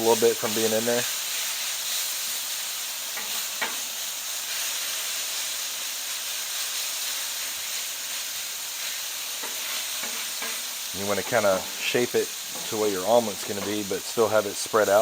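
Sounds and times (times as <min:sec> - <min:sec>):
potatoes sizzling on a griddle: 0:00.0 - 0:15.0
spatula scraping griddle: 0:09.3 - 0:15.0.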